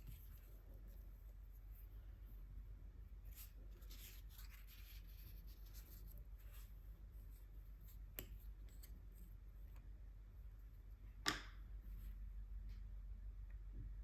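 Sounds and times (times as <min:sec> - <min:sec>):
paintbrush strokes on paper: 0:00.0 - 0:08.1.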